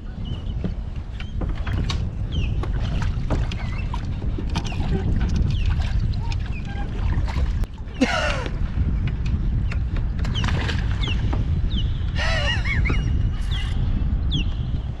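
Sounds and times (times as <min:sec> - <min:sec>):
low rumble: 0:00.0 - 0:15.0
birds chirping: 0:07.9 - 0:15.0.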